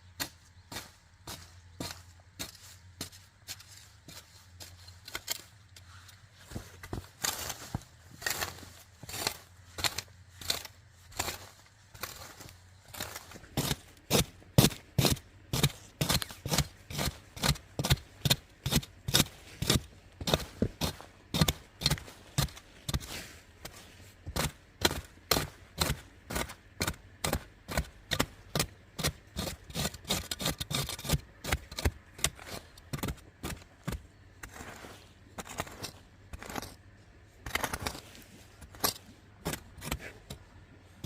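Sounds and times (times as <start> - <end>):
hand tool chopping: 6.5 - 34.8, 37.5 - 40.5.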